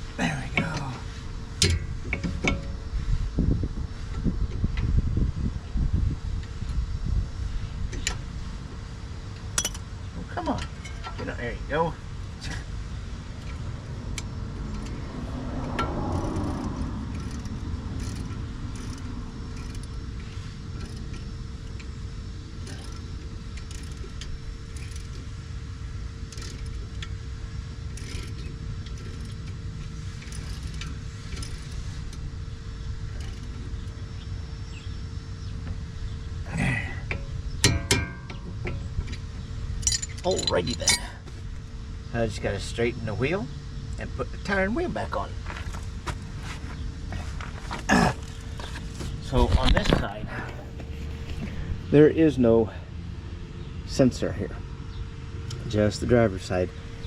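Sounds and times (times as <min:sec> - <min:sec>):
low mechanical hum: 0:00.0 - 0:57.0
sharp metallic clinks: 0:09.4 - 0:09.9, 0:37.1 - 0:39.2, 0:39.8 - 0:41.2.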